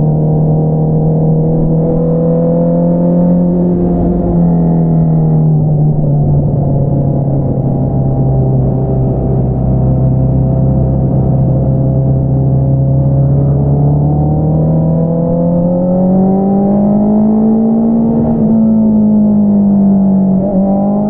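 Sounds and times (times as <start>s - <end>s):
motorcycle engine running: 3.2s - 16.0s.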